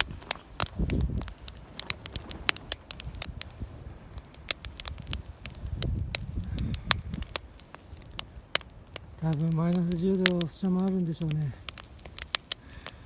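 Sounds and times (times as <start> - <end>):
campfire wood crackling: 0.0 - 13.0.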